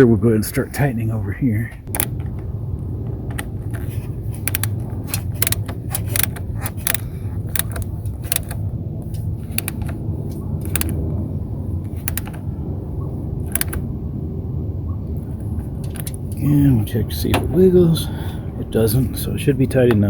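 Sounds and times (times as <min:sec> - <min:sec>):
steady low hum: 0:00.0 - 0:20.0
ratcheting wrench clicking: 0:01.9 - 0:02.3, 0:03.4 - 0:11.0, 0:11.9 - 0:12.4, 0:13.5 - 0:13.8, 0:15.8 - 0:16.2.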